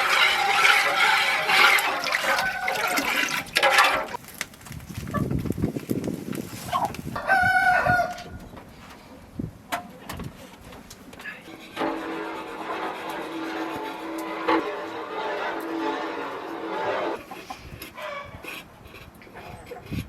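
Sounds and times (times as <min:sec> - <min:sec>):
chickens calling: 0:00.0 - 0:04.2
water rushing: 0:00.0 - 0:04.2.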